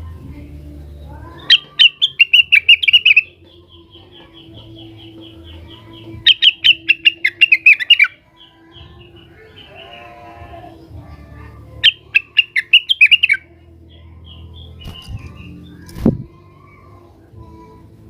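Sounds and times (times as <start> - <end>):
bird singing sharp notes: 1.3 - 10.0, 11.8 - 13.5.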